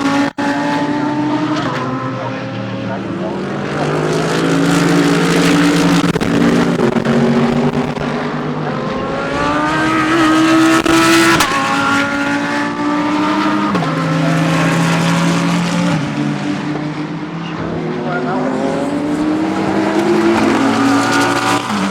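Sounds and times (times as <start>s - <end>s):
race car engines accelerating: 0.0s - 21.9s.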